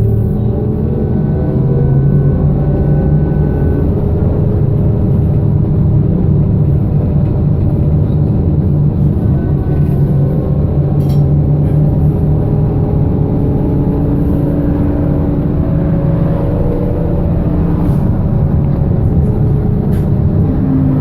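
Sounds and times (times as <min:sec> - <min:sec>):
electric traction drive whine: 0:00.0 - 0:21.0
rumble of running gear and road: 0:00.0 - 0:21.0.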